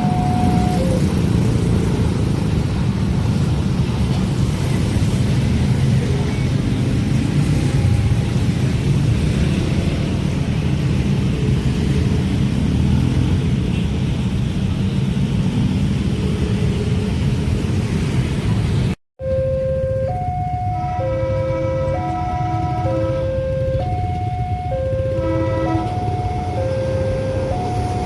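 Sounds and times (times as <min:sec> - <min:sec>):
level-crossing alarm tones: 0:00.0 - 0:01.1, 0:19.2 - 0:28.0.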